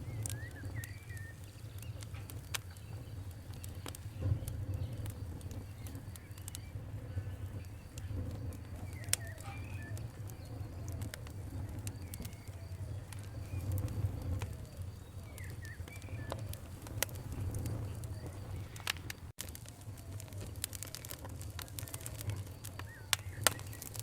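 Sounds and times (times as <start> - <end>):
birds calling: 0.0 - 19.2
campfire crackling and popping: 0.0 - 24.0.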